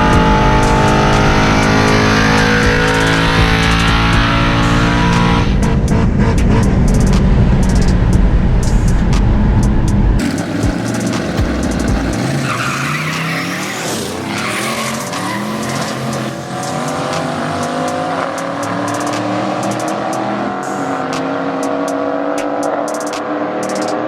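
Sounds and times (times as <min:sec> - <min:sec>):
race car engine revving: 0:00.0 - 0:24.0
tyres squealing: 0:10.2 - 0:20.0.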